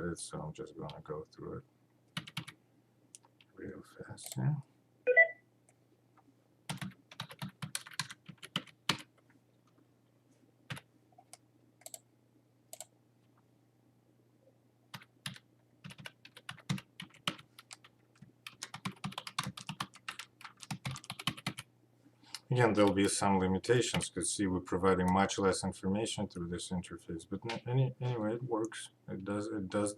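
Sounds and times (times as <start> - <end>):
typing on computer keyboard: 2.2 - 2.6, 6.7 - 9.1, 14.9 - 21.7.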